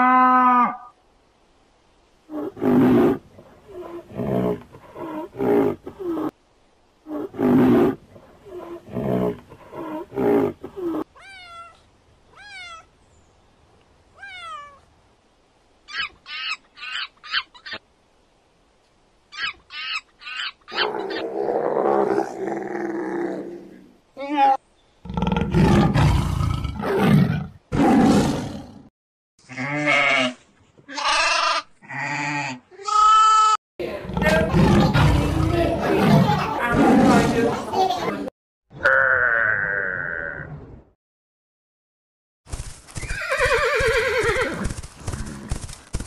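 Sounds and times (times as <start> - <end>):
pitched animal calls: 15.9 - 17.8, 19.3 - 21.4.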